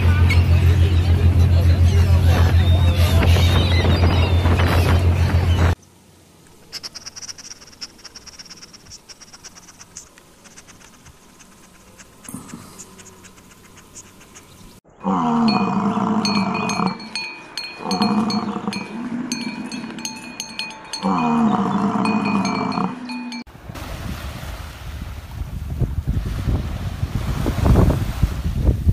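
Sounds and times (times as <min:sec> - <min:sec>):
cattle lowing: 0:06.7 - 0:23.4
bright chime-like ringing: 0:15.5 - 0:23.5.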